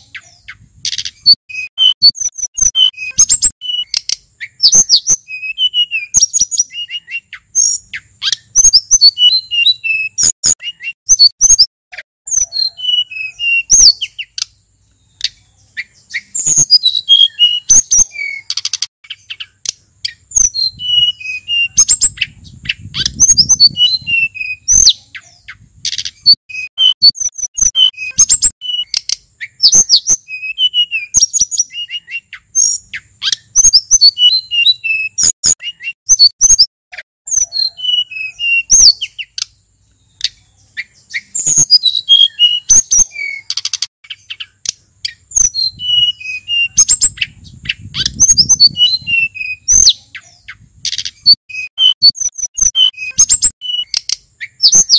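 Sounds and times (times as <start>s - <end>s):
bird singing whistled notes: 0.0s - 11.7s, 12.3s - 36.7s, 37.3s - 54.9s.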